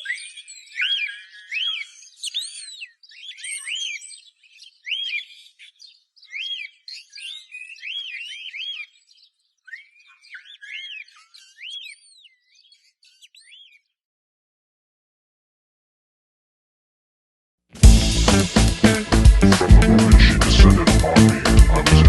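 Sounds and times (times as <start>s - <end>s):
bird whistling and chirping: 0.0s - 13.9s.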